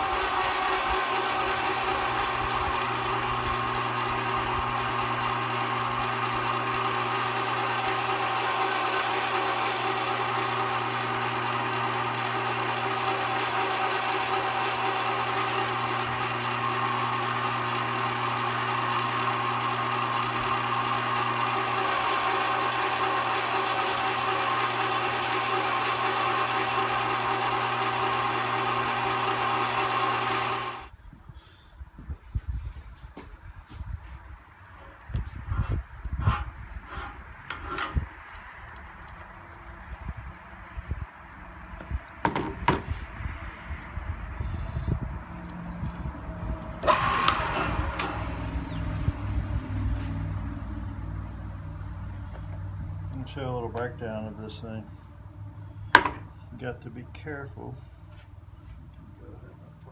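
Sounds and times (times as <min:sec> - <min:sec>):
meat grinder motor hum: 0:00.0 - 0:30.9, 0:34.6 - 0:53.4.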